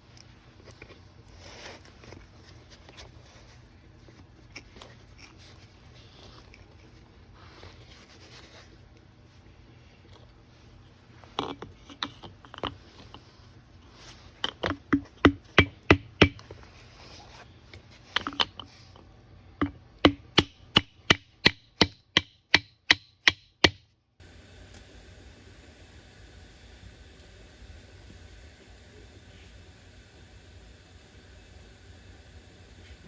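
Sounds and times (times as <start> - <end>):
sharp hammer strikes: 19.6 - 23.8.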